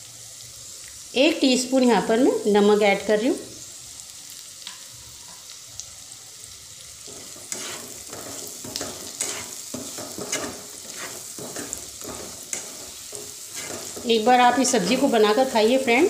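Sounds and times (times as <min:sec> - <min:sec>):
vegetables sizzling in oil: 0:00.0 - 0:16.0
spatula scraping a pan: 0:07.0 - 0:15.8.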